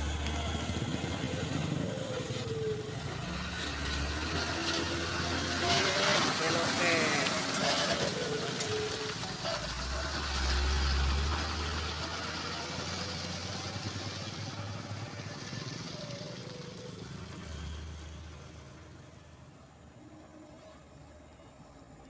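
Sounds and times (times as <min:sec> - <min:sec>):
heavy diesel truck engine rumbling: 0:00.0 - 0:19.9.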